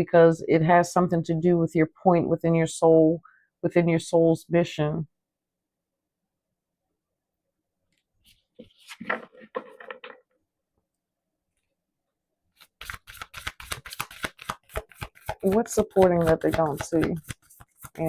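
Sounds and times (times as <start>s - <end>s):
cards rustling: 8.3s - 10.2s, 12.6s - 18.0s.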